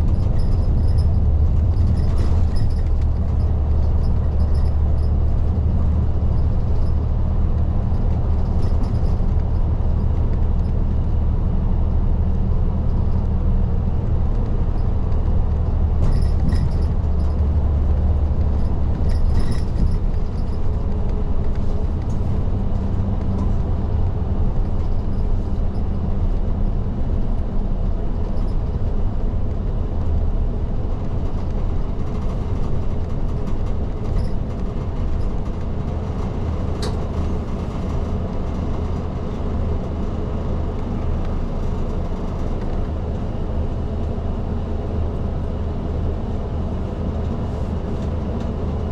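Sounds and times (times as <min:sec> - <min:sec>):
bus diesel engine drone: 0:00.0 - 0:48.9
road noise: 0:00.0 - 0:48.9.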